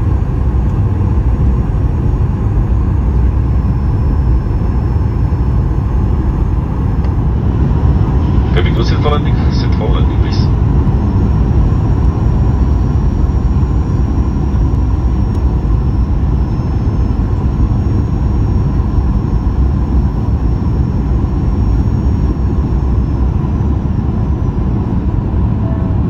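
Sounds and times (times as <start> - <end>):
aircraft cabin engine rumble: 0.0 - 26.0
thin high whine: 0.0 - 26.0.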